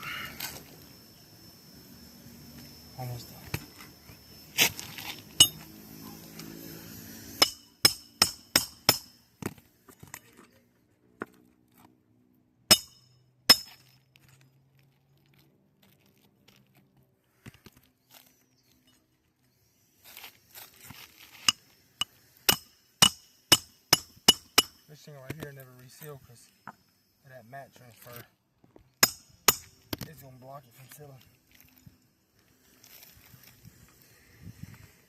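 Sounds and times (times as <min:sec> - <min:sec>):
hammer striking metal: 0:05.4 - 0:05.6, 0:07.4 - 0:09.2, 0:12.7 - 0:13.8, 0:21.5 - 0:24.8, 0:29.0 - 0:29.7.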